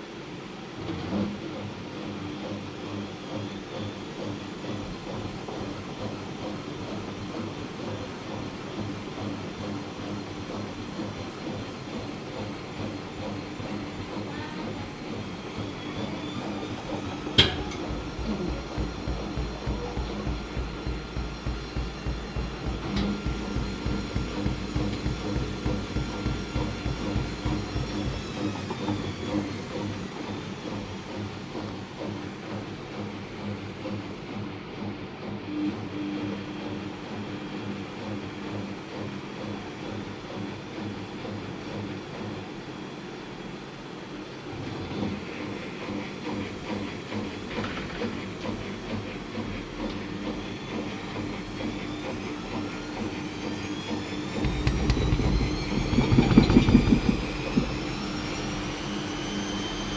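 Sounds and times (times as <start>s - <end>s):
washing machine motor hum: 1.4s - 34.4s, 36.4s - 59.9s
rhythmic low pulsing: 15.4s - 29.4s, 54.2s - 58.5s
rattling clicks: 54.4s - 58.0s.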